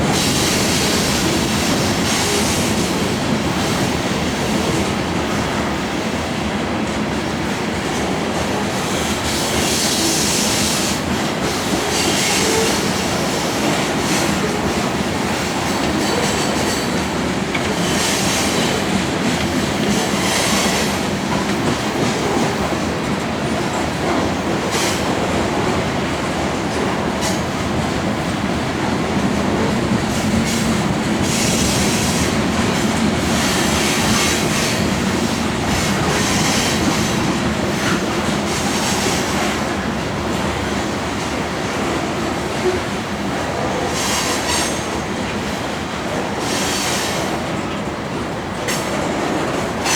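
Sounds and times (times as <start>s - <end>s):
freight train rolling past: 0.0s - 49.9s
wheels clicking over rail joints: 13.6s - 25.6s.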